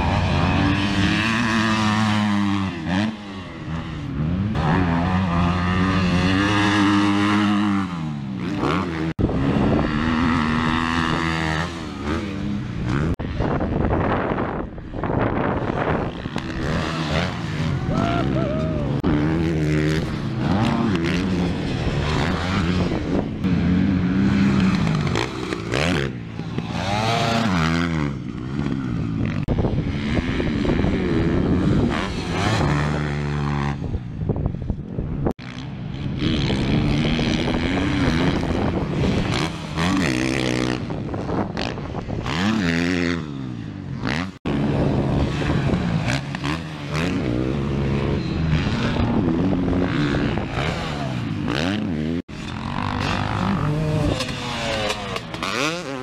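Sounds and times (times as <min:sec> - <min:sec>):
dirt bike engine revving: 0:00.0 - 0:34.5, 0:35.2 - 0:56.0
wind rush: 0:09.2 - 0:11.6, 0:12.3 - 0:25.2, 0:28.6 - 0:43.2, 0:44.0 - 0:51.5.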